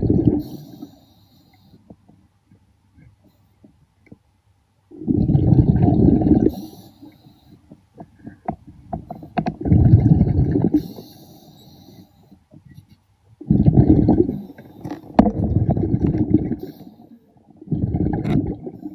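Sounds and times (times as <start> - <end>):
air bubbling underwater: 0.0 - 0.7, 4.9 - 6.7, 9.4 - 11.0, 13.4 - 17.0, 17.6 - 18.9
faint clicks and ticks: 0.6 - 4.3, 6.6 - 9.7, 10.5 - 13.4, 14.1 - 17.3.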